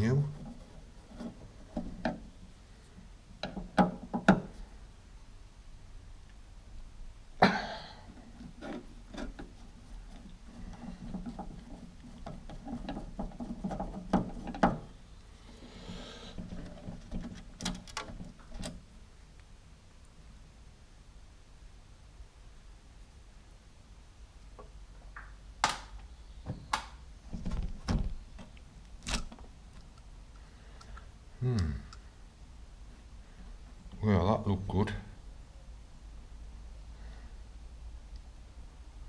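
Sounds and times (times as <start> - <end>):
rubbing and fiddling: 0.0 - 4.8, 8.0 - 18.9.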